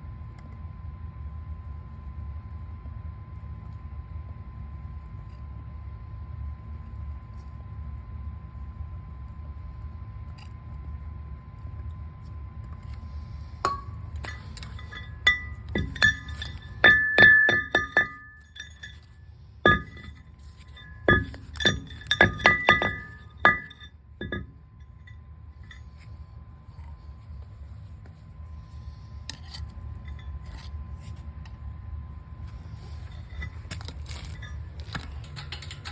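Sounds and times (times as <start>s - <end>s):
steady low hum: 0.0s - 35.9s
metal tools clinking: 13.7s - 24.6s, 32.8s - 35.9s.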